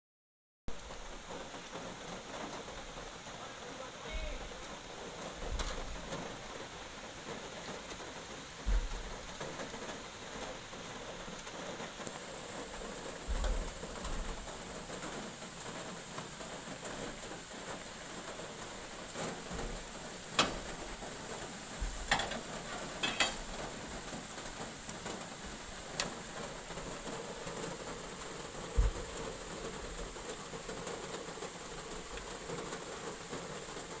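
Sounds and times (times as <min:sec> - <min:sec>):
heavy rain falling: 0:00.7 - 0:34.0
sharp knocks and low thumps: 0:05.4 - 0:06.3, 0:08.6 - 0:09.6, 0:13.2 - 0:14.4, 0:21.8 - 0:22.2, 0:28.7 - 0:29.2.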